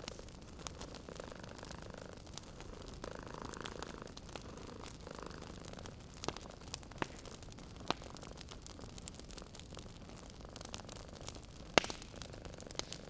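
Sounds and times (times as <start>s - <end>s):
cat purring: 0.0s - 6.6s
fire popping: 0.0s - 13.0s
wood fire crackling: 0.0s - 13.0s.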